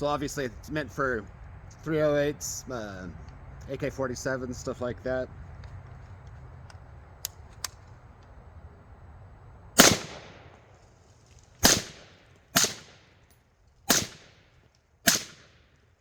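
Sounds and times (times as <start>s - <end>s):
suppressed rifle shots: 9.8s - 10.6s, 11.6s - 13.2s, 13.9s - 14.4s, 15.0s - 15.6s.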